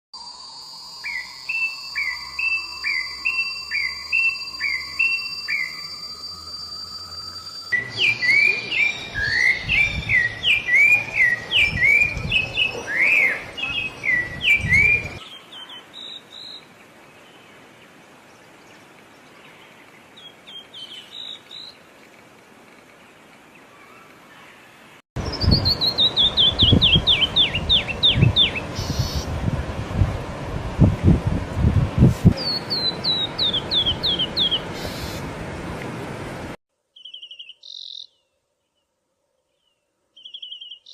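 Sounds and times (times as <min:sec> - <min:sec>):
songbirds chirping: 0:00.9 - 0:29.8, 0:32.3 - 0:35.9, 0:36.9 - 0:40.9
low rumbling noise: 0:25.2 - 0:36.6
chirps falling in pitch: 0:37.0 - 0:38.3.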